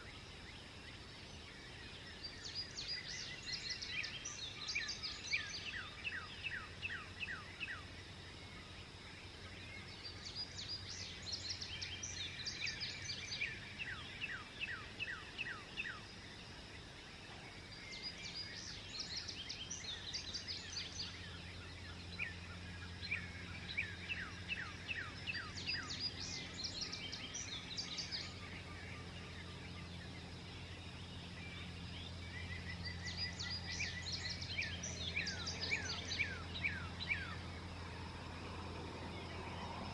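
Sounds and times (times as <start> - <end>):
songbirds singing: 0.0 - 39.9
steady low hum: 0.0 - 39.9.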